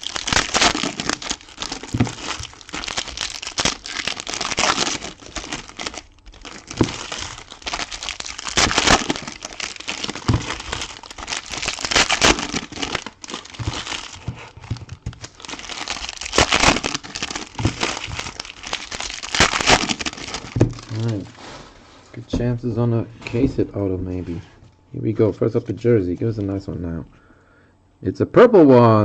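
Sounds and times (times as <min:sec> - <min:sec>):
wrappers crinkling and tearing: 0:00.0 - 0:21.4.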